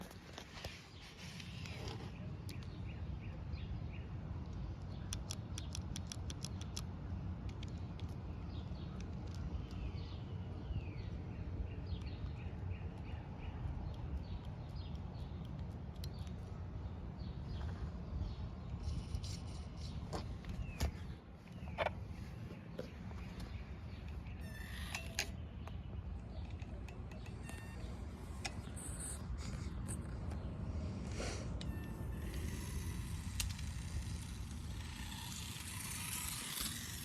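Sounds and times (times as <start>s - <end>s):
sharp clicks: 4.4s - 10.1s, 11.9s - 16.5s, 22.8s - 30.5s, 31.6s - 37.0s
bird chirps: 20.6s - 30.6s.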